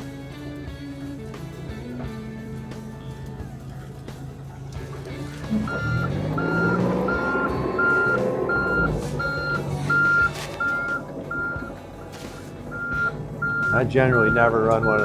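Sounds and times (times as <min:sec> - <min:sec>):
excavator engine running: 0:00.0 - 0:15.0
hydraulics working: 0:00.0 - 0:15.0
travel alarm beeping: 0:05.5 - 0:11.8, 0:12.6 - 0:15.0.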